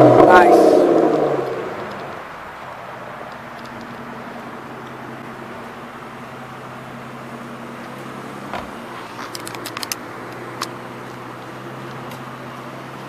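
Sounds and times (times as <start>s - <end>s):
car engine idling: 0.0s - 13.0s
dull thump: 8.4s - 9.0s.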